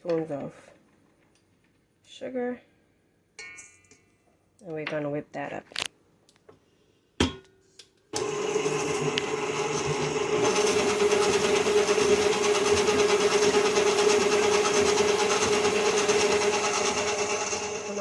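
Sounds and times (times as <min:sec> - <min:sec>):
electric mixer running: 0:08.2 - 0:18.0.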